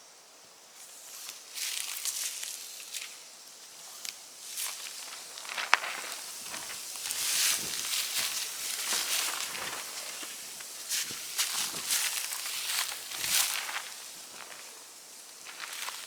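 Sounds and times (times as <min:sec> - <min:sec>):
footsteps crunching dry leaves: 0:04.4 - 0:16.0.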